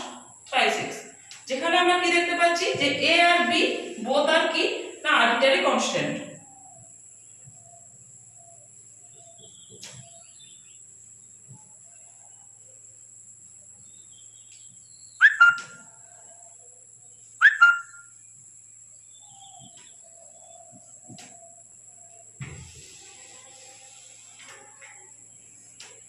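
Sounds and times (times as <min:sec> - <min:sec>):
faint electrical whine: 0:00.0 - 0:26.0
bird calling: 0:14.6 - 0:16.4, 0:17.4 - 0:18.2.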